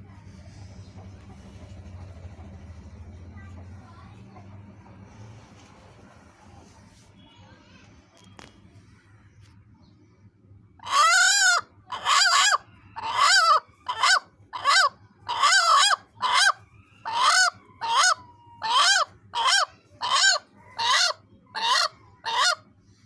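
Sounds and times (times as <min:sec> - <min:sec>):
hen giving bark-like calls: 0:10.8 - 0:22.6.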